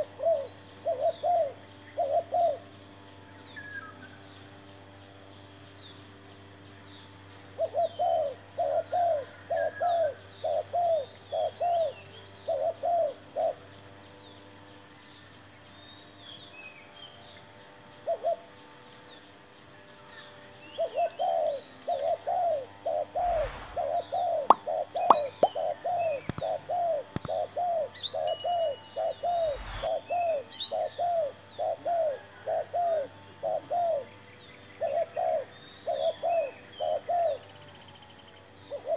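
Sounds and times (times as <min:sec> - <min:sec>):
small birds chirping: 0:19.0 - 0:31.9
dove cooing: 0:28.6 - 0:34.0.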